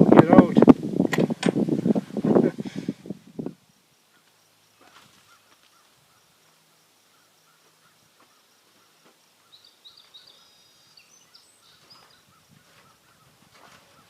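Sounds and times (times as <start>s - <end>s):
high bird chirps: 7.1s - 14.0s.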